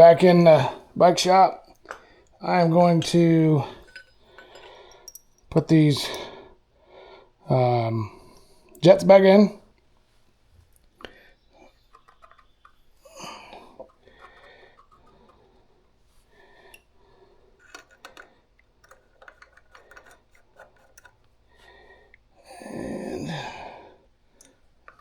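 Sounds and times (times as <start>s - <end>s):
small metal parts clicking: 3.8s - 5.5s, 11.6s - 12.9s, 17.6s - 21.3s
person sighing: 13.1s - 13.8s, 22.4s - 24.0s.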